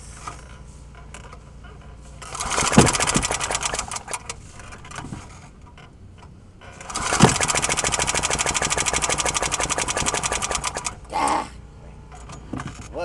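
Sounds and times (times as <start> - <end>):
lawnmower engine running: 2.2 - 4.8, 6.7 - 11.1.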